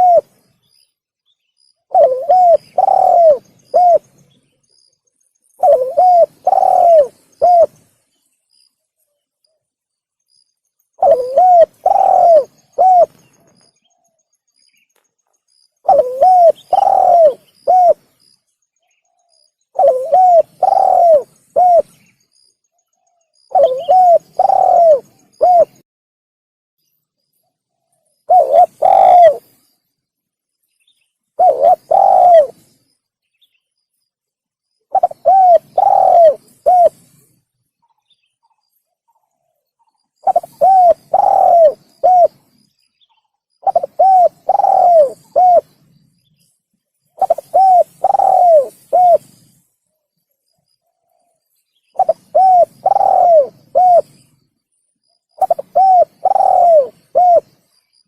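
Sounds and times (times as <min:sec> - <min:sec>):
dove cooing: 0:00.0 - 0:00.3, 0:01.9 - 0:04.2, 0:05.6 - 0:07.8, 0:11.0 - 0:13.6, 0:15.8 - 0:18.1, 0:19.7 - 0:22.0, 0:23.5 - 0:25.8, 0:28.3 - 0:29.6, 0:31.4 - 0:32.7, 0:34.9 - 0:37.3, 0:40.2 - 0:42.6, 0:43.6 - 0:45.8, 0:47.2 - 0:49.6, 0:52.0 - 0:54.2, 0:55.4 - 0:57.6.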